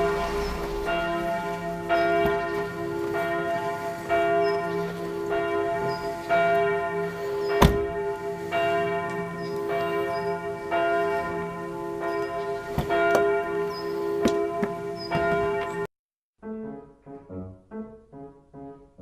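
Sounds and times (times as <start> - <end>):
steady sustained hum: 0.0 - 3.2
church bells ringing: 0.0 - 15.9
sharp knock: 7.6 - 7.9.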